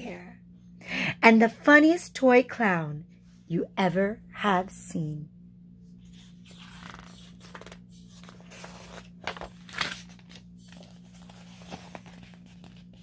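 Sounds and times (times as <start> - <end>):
low steady hum: 0.0 - 13.0
paper page rustling: 6.0 - 13.0.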